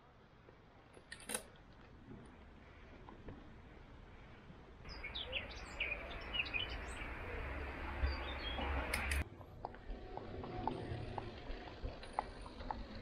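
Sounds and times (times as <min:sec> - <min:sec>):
birds chirping: 0:04.8 - 0:09.2.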